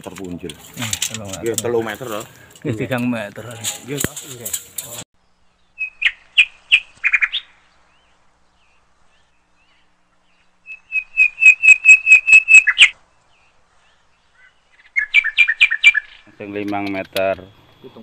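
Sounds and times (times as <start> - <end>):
bird chirping rapidly: 5.2 - 16.3.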